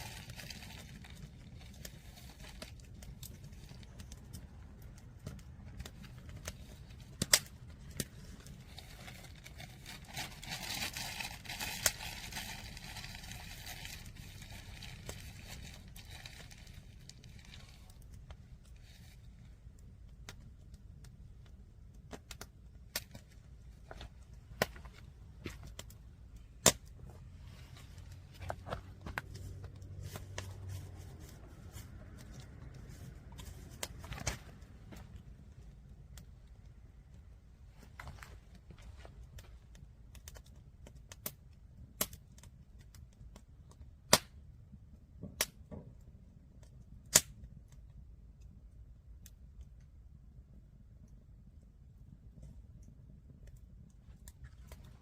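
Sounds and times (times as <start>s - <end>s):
firewood crackling and popping: 0.0s - 55.0s.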